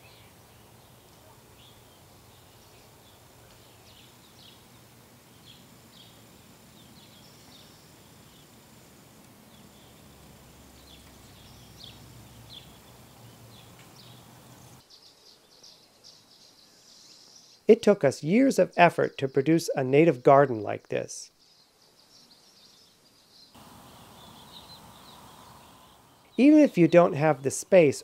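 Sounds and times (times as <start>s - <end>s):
light hiss: 0.0s - 18.4s, 20.9s - 28.0s
wild birds chirping: 0.0s - 28.0s
high bird twittering: 23.6s - 27.6s.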